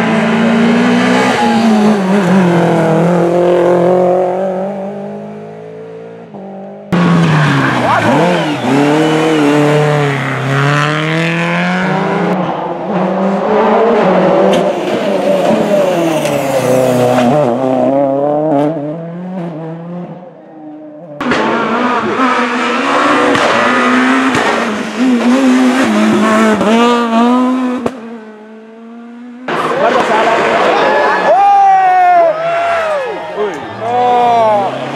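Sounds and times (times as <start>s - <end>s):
rally car engines at full throttle: 0.0s - 34.9s.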